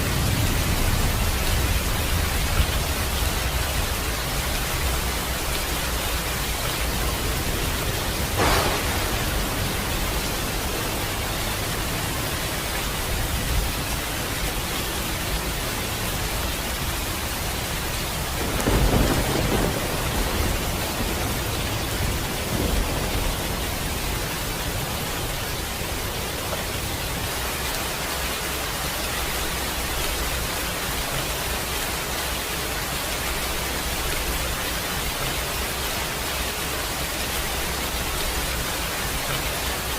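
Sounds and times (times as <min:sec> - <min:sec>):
thunder rumble: 0:00.0 - 0:27.6
steady rainfall: 0:00.0 - 0:39.9
thunder crack: 0:06.9 - 0:13.8, 0:18.2 - 0:25.0.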